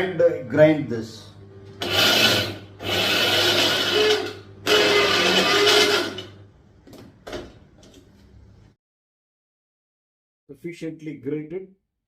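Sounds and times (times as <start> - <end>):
electric mixer grinder running: 1.8 - 6.4.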